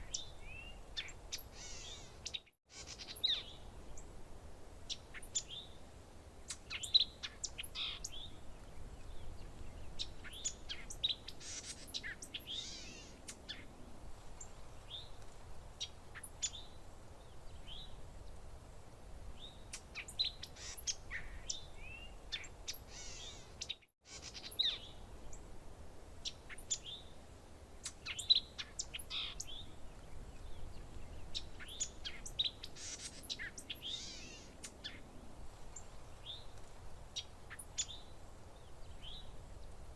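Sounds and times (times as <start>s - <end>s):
songbirds chirping and whistling: 0.0s - 4.1s, 6.4s - 13.7s, 19.4s - 25.4s, 27.8s - 35.0s, 37.2s - 39.8s.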